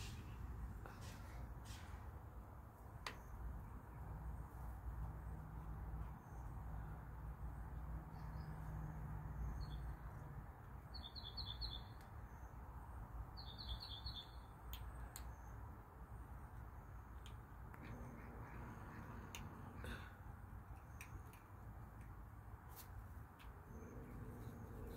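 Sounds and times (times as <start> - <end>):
songbird chirping: 7.8 - 15.8.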